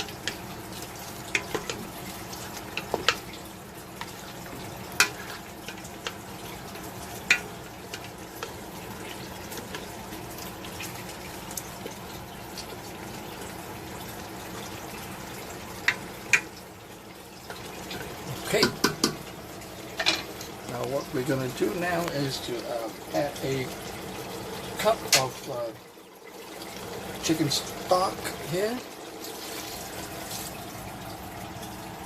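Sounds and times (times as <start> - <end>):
chicken sizzling in a pot: 0.0 - 32.0
utensil knocking against pot: 18.6 - 19.2.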